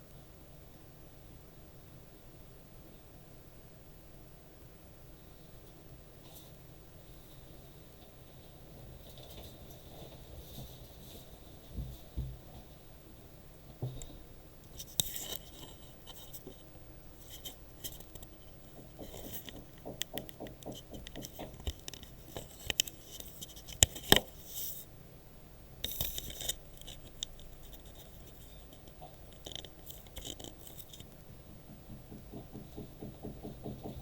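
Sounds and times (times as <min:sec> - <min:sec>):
taps and clicks through ceiling: 0:13.7 - 0:24.4, 0:25.8 - 0:34.0
loud knocks: 0:31.0 - 0:34.0.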